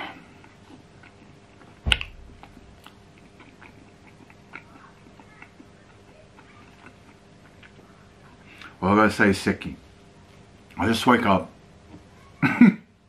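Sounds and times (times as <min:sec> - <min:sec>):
chewing doughnut: 0:00.2 - 0:01.7, 0:02.8 - 0:08.8
sharp knock: 0:01.9 - 0:02.9.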